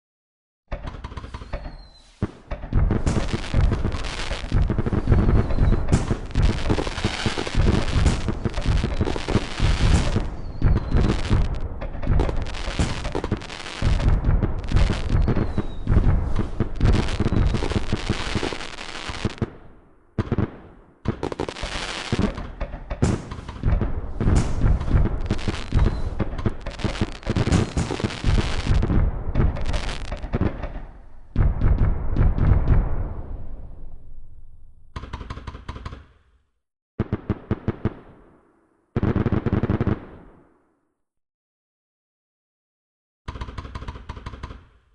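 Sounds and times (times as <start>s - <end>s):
fireworks banging and crackling: 1.1s - 33.5s, 37.0s - 38.4s, 39.0s - 40.5s.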